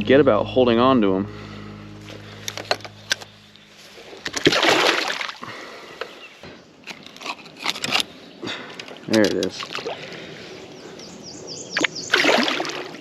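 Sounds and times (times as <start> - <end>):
water sloshing and splashing: 3.8 - 6.2, 7.2 - 10.6, 11.8 - 13.0.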